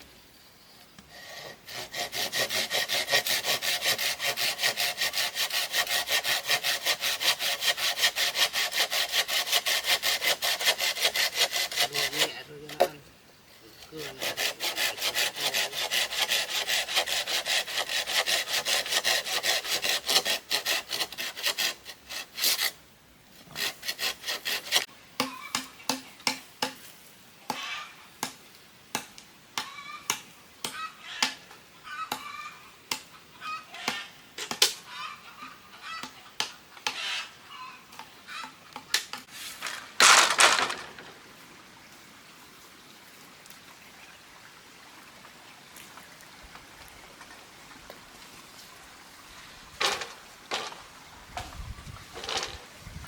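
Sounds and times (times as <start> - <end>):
saw cutting bamboo: 1.1 - 13.0, 13.7 - 22.8, 23.4 - 26.8, 38.9 - 41.2, 49.8 - 50.8, 52.2 - 52.6.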